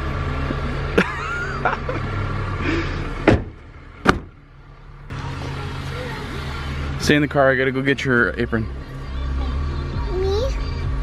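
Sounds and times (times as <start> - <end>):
car engine idling: 0.0 - 11.0
car doors shutting: 3.2 - 4.4.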